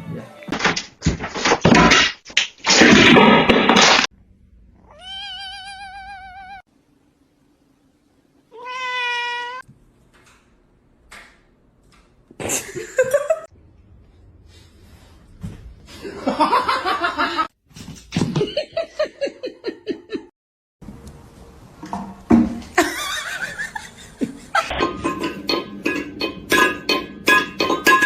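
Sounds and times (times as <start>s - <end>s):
cat meowing: 4.8s - 6.6s, 8.5s - 9.6s.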